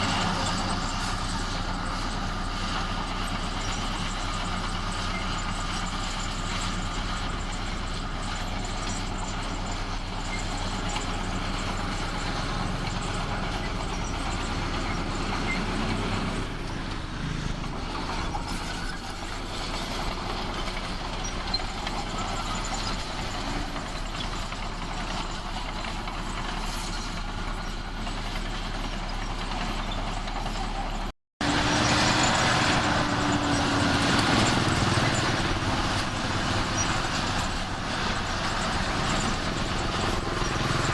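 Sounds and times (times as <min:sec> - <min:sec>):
heavy machinery diesel engine: 0:00.0 - 0:40.9.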